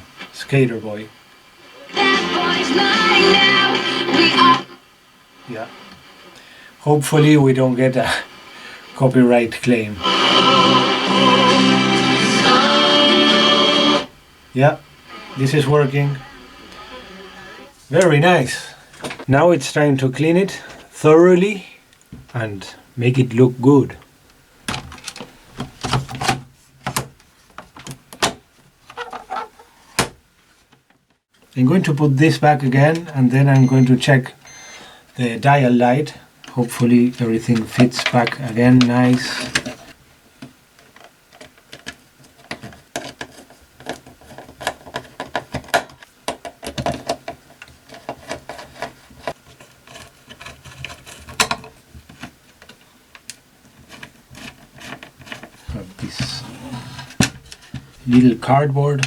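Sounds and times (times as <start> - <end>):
radio parts clicking and knocking: 24.6 - 29.2.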